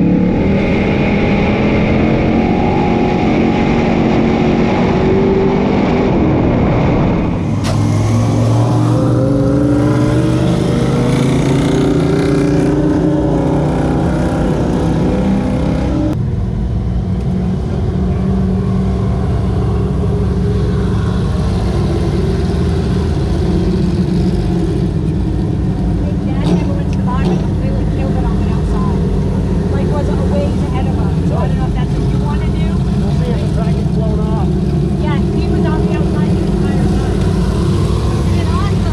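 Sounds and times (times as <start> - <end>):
race car engines revving: 0.0 - 38.9.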